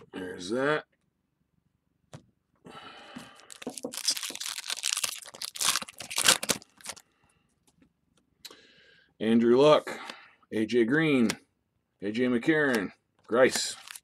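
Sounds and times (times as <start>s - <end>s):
foil wrapper tearing and crinkling: 3.5s - 7.0s, 13.7s - 14.0s.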